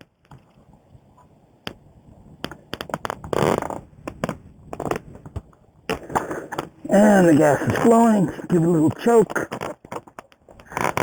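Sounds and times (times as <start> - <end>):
rubbing scrape: 10.6 - 11.0.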